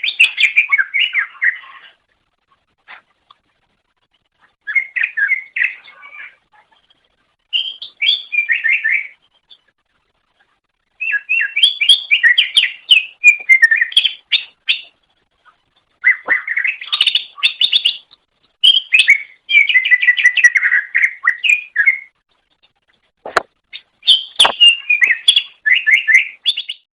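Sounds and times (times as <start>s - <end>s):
bird chirping and whistling: 0.0s - 1.9s, 4.6s - 6.4s, 7.5s - 9.2s, 11.0s - 14.9s, 16.0s - 22.1s, 23.8s - 26.9s.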